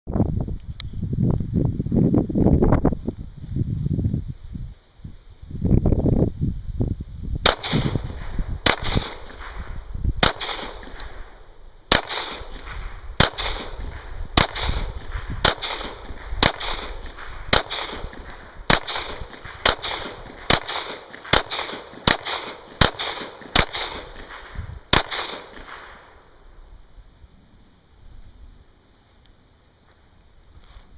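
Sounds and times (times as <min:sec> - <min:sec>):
low rumble of wind or handling: 0:00.1 - 0:30.9
pistol shots with echo: 0:07.4 - 0:26.2.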